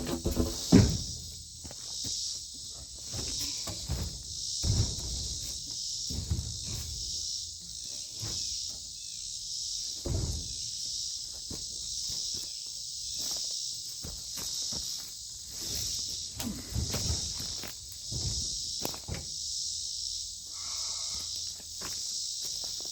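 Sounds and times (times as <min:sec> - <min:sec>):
insect chorus buzzing: 0:00.0 - 0:22.9
dull low thumps: 0:03.8 - 0:07.7, 0:10.0 - 0:10.9.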